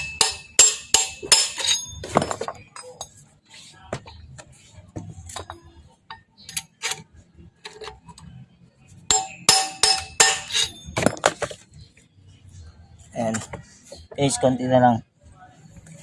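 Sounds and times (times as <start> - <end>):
hammer striking metal: 0.0 - 2.6, 9.1 - 11.2.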